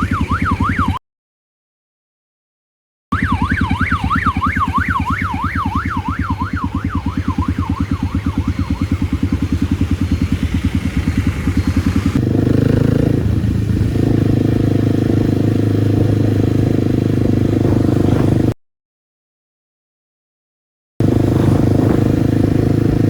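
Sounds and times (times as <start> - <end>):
motorcycle engine: 0.0 - 1.0, 3.2 - 18.6, 21.0 - 23.0
siren wail: 0.0 - 1.0, 3.1 - 12.2.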